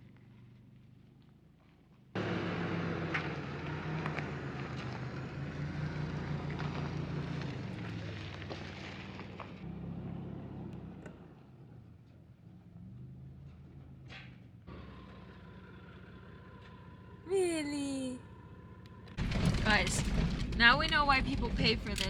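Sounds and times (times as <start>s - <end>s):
engine hum: 0.0s - 22.0s
loud road noise: 2.1s - 22.0s
tyres knocking on loose rock: 19.2s - 22.0s.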